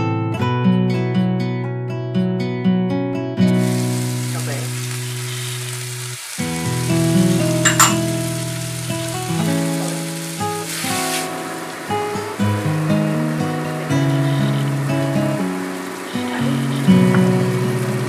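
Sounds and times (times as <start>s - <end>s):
guitar music: 0.0s - 18.0s
masala sizzling in hot oil: 3.4s - 18.0s
sharp clink: 7.6s - 8.1s.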